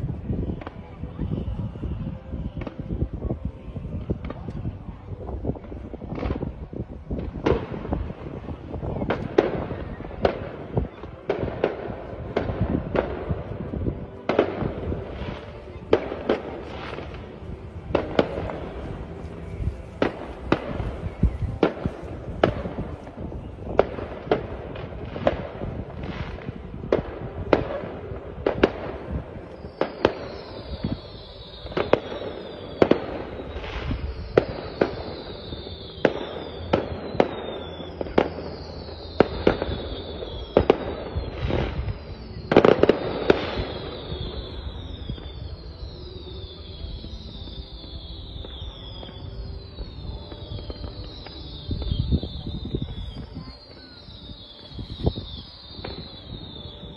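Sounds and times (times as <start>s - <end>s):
firework bangs: 0.0s - 56.9s
high falling whistles: 29.5s - 56.9s.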